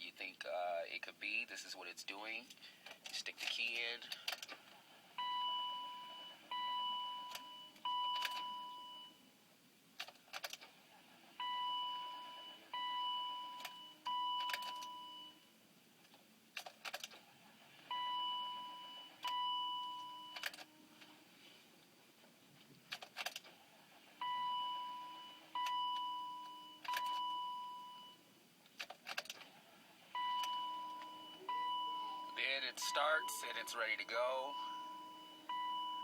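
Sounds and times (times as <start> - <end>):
dashboard warning chime: 5.2 - 9.3, 11.4 - 15.6, 17.8 - 21.2, 24.0 - 28.3, 30.0 - 36.0.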